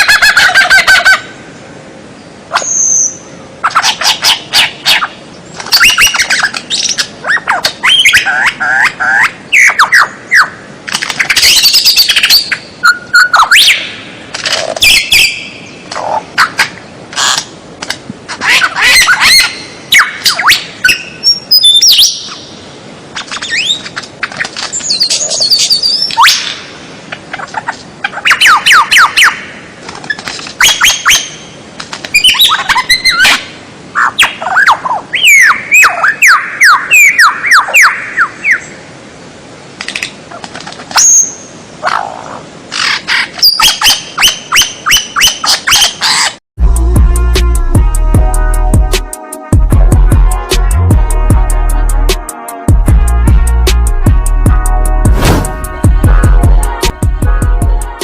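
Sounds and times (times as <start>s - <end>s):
songbird whistles and chattering: 2.5s - 10.6s, 23.2s - 26.6s.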